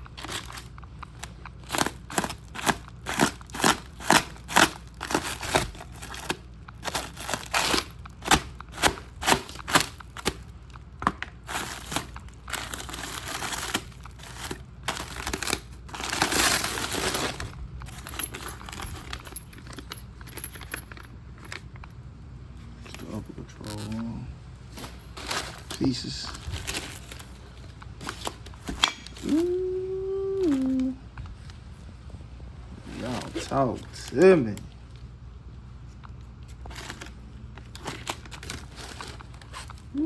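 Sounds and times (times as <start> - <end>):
packaging crinkling and tearing: 0.0 - 19.8, 24.9 - 29.6, 36.4 - 40.0.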